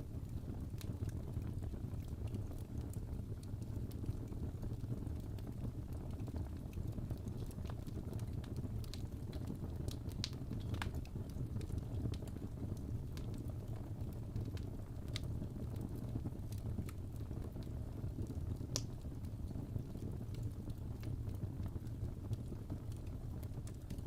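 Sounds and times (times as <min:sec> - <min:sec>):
fire crackling: 0:00.0 - 0:24.0
sharp pops from fire: 0:18.7 - 0:19.0.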